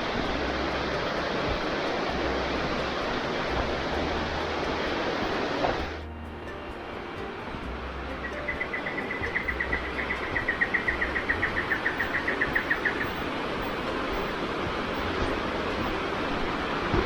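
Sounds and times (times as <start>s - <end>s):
rushing water: 0.0s - 17.0s
rapid trill of high chirps: 8.1s - 14.4s.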